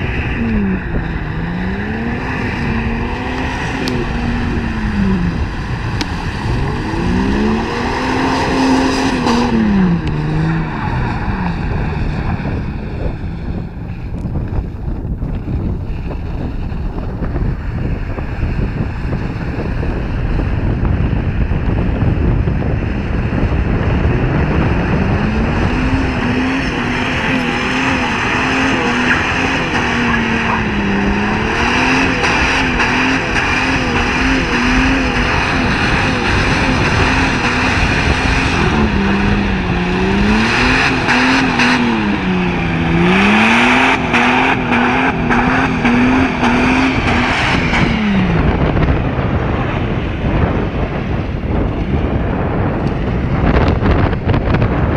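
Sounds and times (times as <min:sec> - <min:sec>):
car engine revving high: 0:00.0 - 0:13.9, 0:22.6 - 0:50.8
steady rushing noise: 0:00.0 - 0:54.9.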